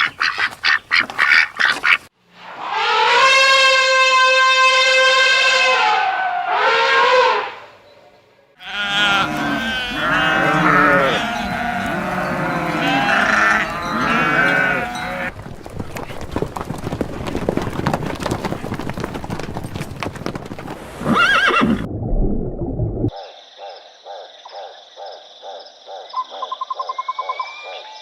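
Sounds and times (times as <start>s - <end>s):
farm animal calls: 0.0s - 2.1s, 8.6s - 15.3s.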